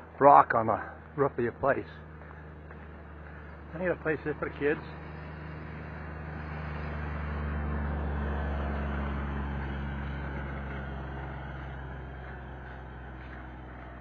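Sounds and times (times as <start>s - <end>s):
vehicle engine and tyre noise: 0.0s - 14.0s.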